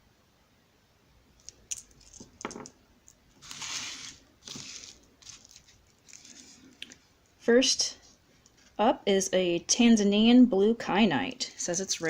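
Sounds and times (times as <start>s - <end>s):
packaging crinkling and tearing: 3.4s - 7.0s.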